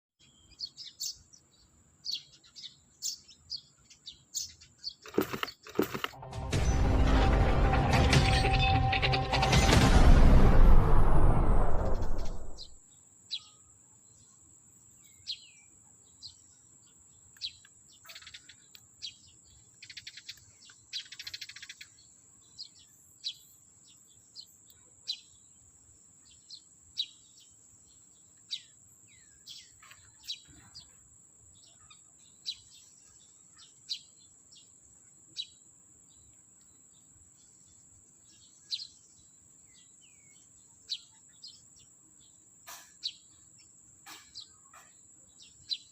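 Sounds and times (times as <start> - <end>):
sparrows chirping: 0.2 - 6.8, 8.0 - 9.4, 12.0 - 45.9
brief rustles: 5.0 - 6.2.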